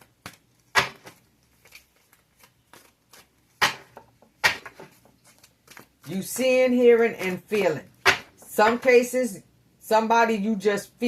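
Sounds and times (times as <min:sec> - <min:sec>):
cards being shuffled: 0:00.0 - 0:03.6, 0:04.6 - 0:07.6.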